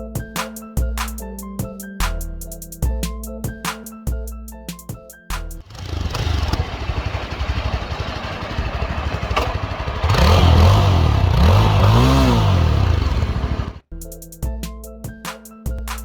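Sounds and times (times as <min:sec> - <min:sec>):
motorcycle engine revving: 0:05.6 - 0:13.8.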